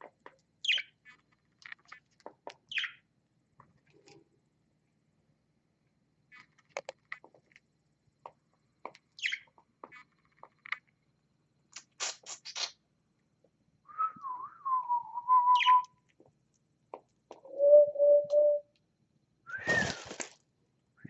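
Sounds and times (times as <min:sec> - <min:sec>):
birds calling: 0:09.2 - 0:10.1, 0:15.5 - 0:15.9
bird whistling long wavering note: 0:13.9 - 0:15.9, 0:17.5 - 0:18.7.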